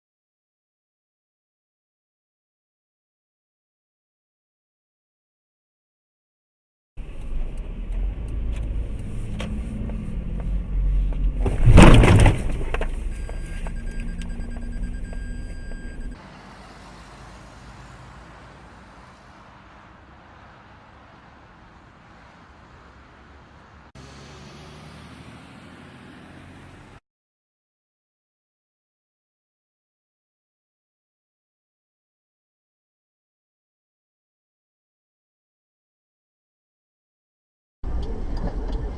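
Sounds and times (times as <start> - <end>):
engine and road rumble: 7.0 - 27.0, 37.8 - 38.9
loud crash impact: 11.4 - 12.6
faint road noise and hiss: 16.2 - 27.0.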